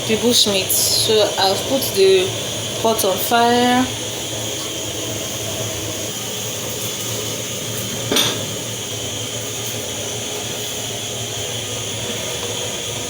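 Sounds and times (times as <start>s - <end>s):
metallic clank of kitchenware: 8.1s - 8.5s.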